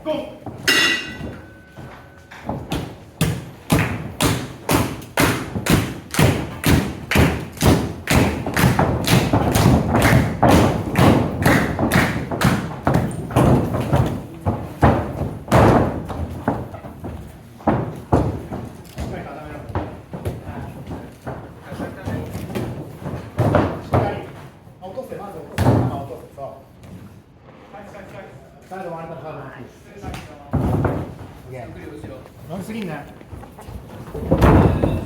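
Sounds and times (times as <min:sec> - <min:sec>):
heavy thumps on wrestling ring: 0:00.5 - 0:24.3, 0:33.4 - 0:35.0.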